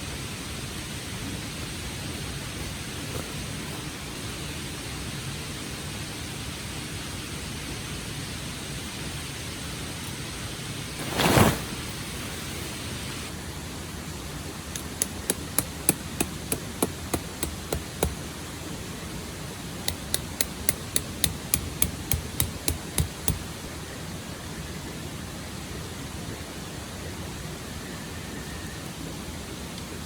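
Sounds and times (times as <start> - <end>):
tent pegs being hammered: 14.7 - 18.4, 19.8 - 23.6.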